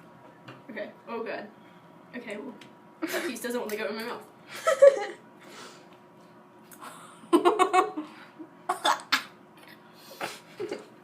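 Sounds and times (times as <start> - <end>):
person coughing and gagging: 8.7 - 9.4.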